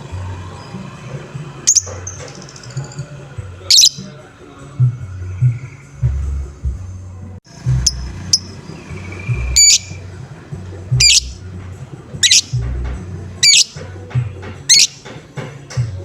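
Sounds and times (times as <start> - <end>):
background music beat: 0.0 - 16.0
lovebird shrill calls: 1.7 - 2.9, 3.7 - 4.1, 7.8 - 10.0, 11.0 - 11.4, 12.2 - 12.6, 13.4 - 13.8, 14.7 - 15.0.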